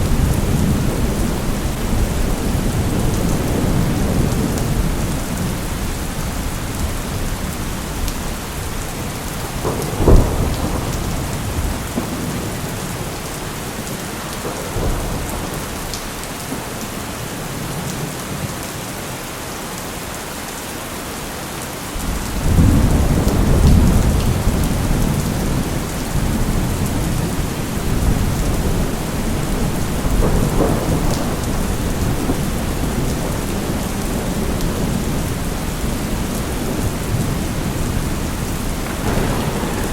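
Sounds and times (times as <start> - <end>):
deep rumble of thunder: 0.0 - 16.6, 22.0 - 39.9
steady rain: 0.0 - 39.9
sharp thunder crack: 38.6 - 39.9.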